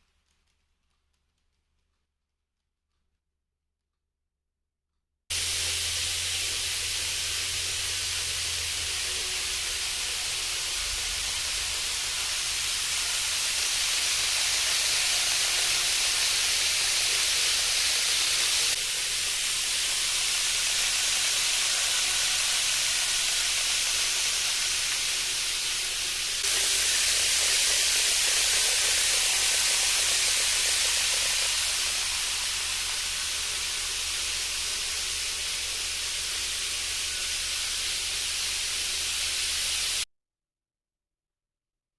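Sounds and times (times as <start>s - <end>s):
model train wheels rolling on rail: 5.3s - 40.0s.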